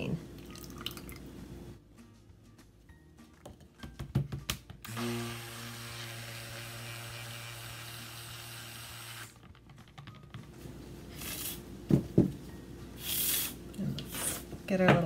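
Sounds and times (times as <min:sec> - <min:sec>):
stick blender motor hum: 0:04.9 - 0:09.4.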